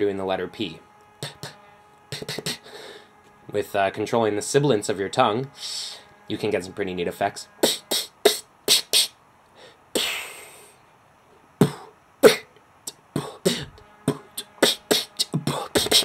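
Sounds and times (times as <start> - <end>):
beatbox inward snares: 1.0 - 3.4, 7.5 - 9.2, 10.0 - 10.7, 11.6 - 16.0.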